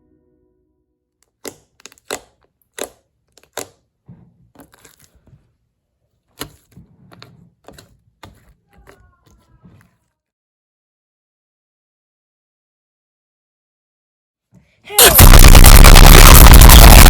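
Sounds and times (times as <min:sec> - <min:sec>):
slime clicking and popping: 0:01.3 - 0:03.8.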